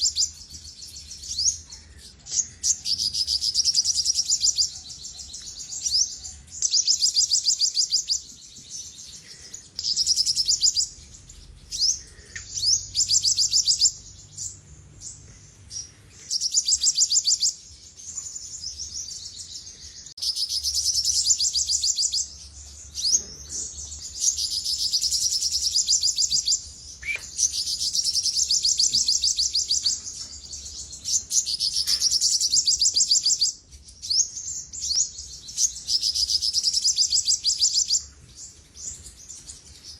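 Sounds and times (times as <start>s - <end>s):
bird singing high trills: 9.0s - 38.2s.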